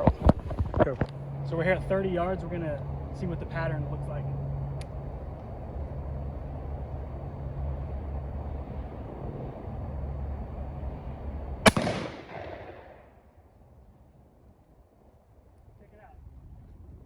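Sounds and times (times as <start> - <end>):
steady low hum: 0.0 - 17.0
rifle shot: 11.6 - 13.2.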